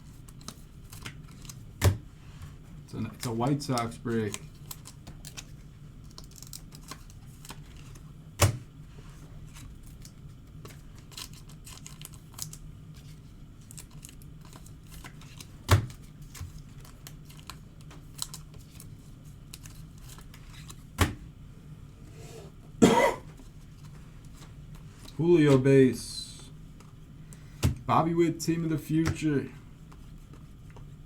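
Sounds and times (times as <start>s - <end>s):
cards clicking and tapping: 28.9s - 29.3s.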